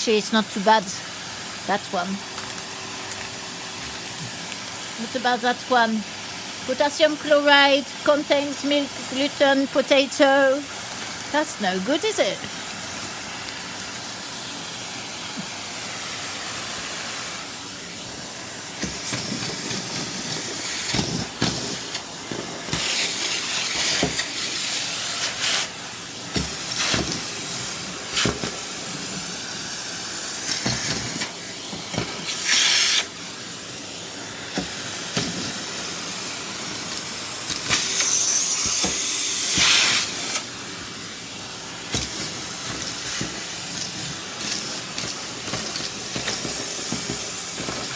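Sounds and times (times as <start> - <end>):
vacuum cleaner suction hiss: 0.0 - 47.9
food clicking up vacuum hose: 2.3 - 5.0, 10.8 - 33.4, 34.4 - 41.0, 41.8 - 47.9.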